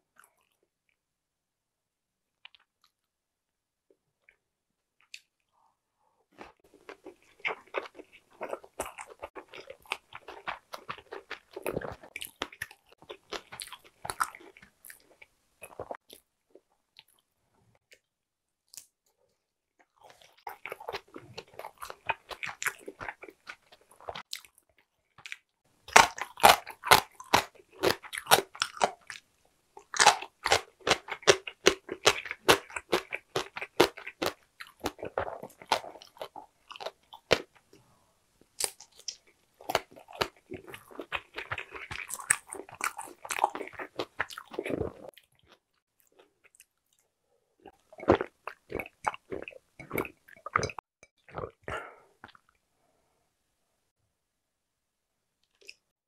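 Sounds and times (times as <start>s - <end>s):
wet chewing of dumpling: 6.4s - 18.0s, 19.8s - 52.6s
crisp crunching of pickled radish: 25.2s - 29.2s, 29.8s - 37.6s, 38.6s - 46.8s.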